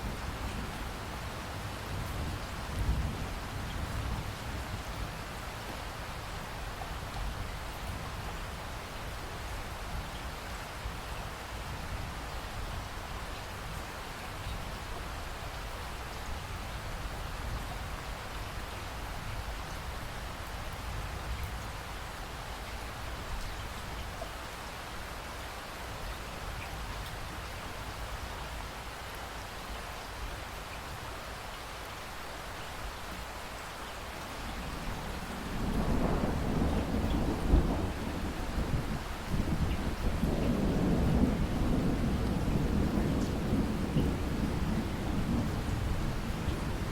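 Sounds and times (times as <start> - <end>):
heavy rain falling: 0.0 - 46.9
thunder rumbling: 34.6 - 46.9.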